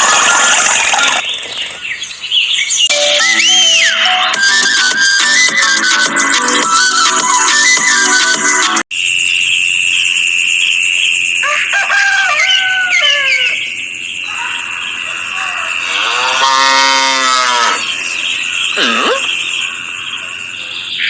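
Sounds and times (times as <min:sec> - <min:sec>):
long animal call: 0:14.3 - 0:18.0, 0:18.7 - 0:20.9
gliding animal calls: 0:14.3 - 0:21.0
cow mooing: 0:15.8 - 0:17.9.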